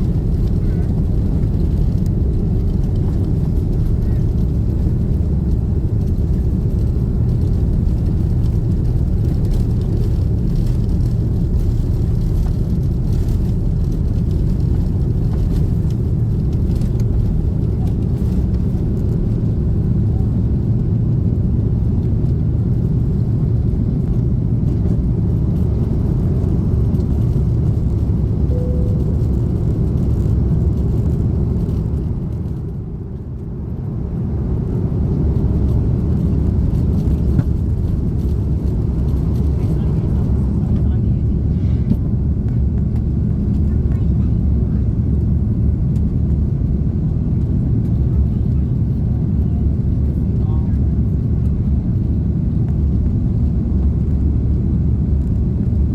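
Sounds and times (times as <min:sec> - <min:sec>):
airplane cabin engine rumble: 0:00.0 - 0:55.9.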